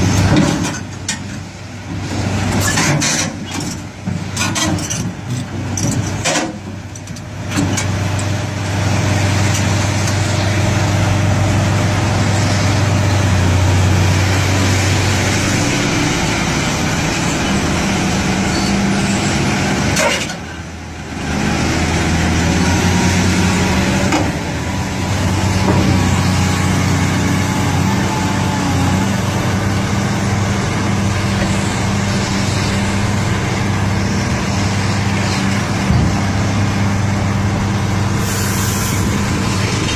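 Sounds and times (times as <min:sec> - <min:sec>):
excavator diesel engine drone: 0:00.0 - 0:39.9.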